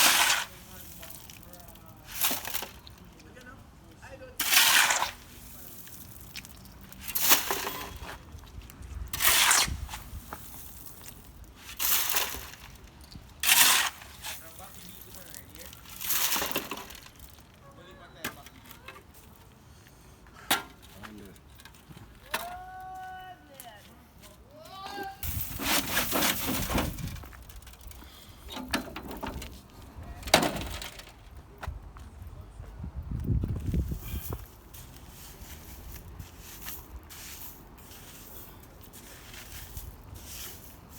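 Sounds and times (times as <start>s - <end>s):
debris scraping on road: 0.0s - 19.6s, 25.1s - 31.4s, 33.3s - 40.9s
rubble scraping and knocking: 25.2s - 31.2s.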